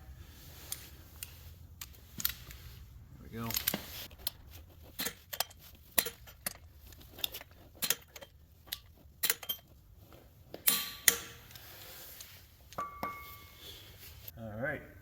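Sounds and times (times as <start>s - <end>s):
metal tools set down: 10.6s - 11.6s, 12.8s - 13.8s.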